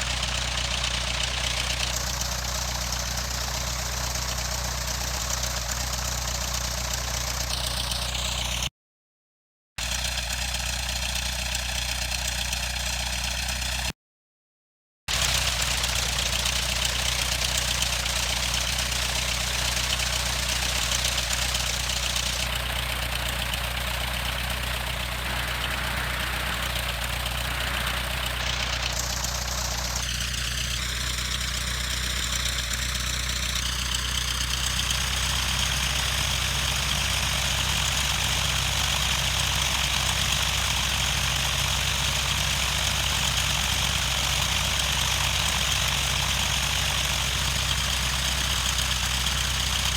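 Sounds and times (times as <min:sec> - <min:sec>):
aircraft engine and propeller idling: 0:00.0 - 0:08.7, 0:09.8 - 0:13.9, 0:15.1 - 0:49.9
steady hiss: 0:25.2 - 0:29.9.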